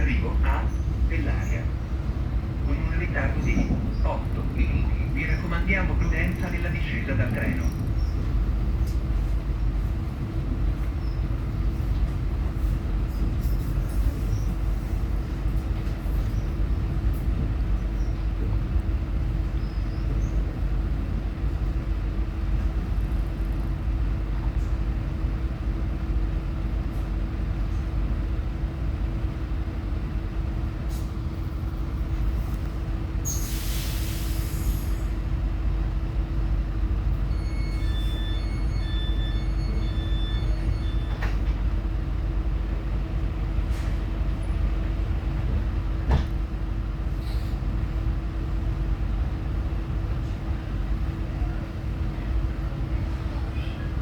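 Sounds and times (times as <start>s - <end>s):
train interior rumble: 0.0s - 54.0s.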